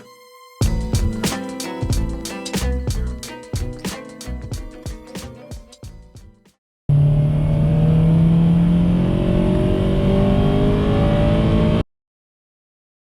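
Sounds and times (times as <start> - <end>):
car engine accelerating: 6.9 - 11.8.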